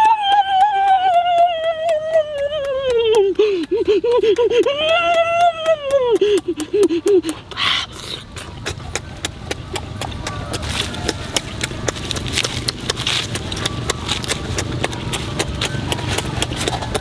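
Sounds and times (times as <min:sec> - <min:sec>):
lip smacking and wet chewing: 0:06.4 - 0:17.0.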